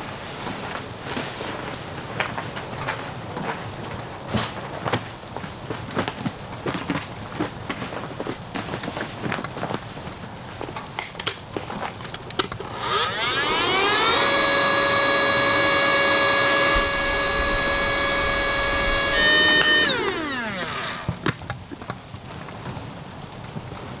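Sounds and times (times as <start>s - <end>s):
small electric motor whining: 12.5s - 21.4s.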